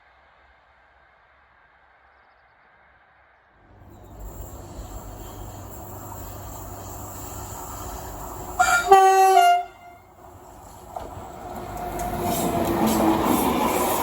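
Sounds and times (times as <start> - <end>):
train rumbling on rails: 3.6 - 14.0
train horn: 8.6 - 10.2.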